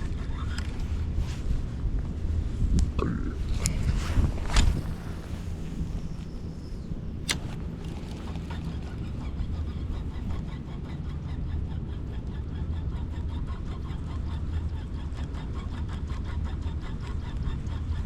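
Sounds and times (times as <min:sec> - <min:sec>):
steady low rumble: 0:00.0 - 0:18.0
fishing reel ticking: 0:07.2 - 0:09.6.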